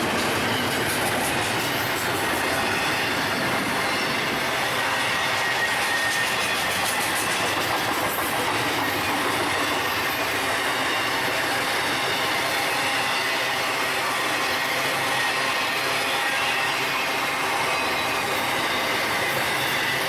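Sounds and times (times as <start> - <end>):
freight train cars rolling: 0.0 - 13.3
high wheel squeal: 0.0 - 20.0.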